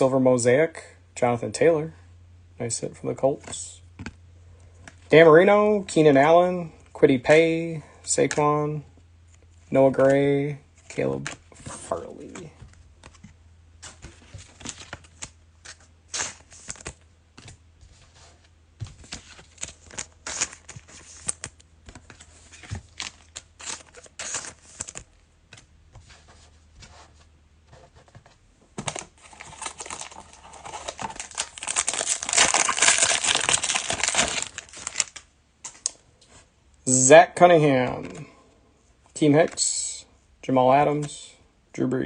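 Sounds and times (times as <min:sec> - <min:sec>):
foil wrapper crinkling and tearing: 0:22.9 - 0:25.1, 0:28.9 - 0:35.3.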